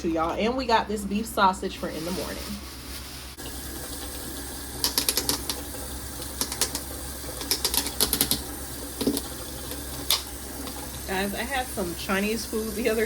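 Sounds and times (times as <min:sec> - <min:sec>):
sharp clicks and taps: 0:04.8 - 0:05.6.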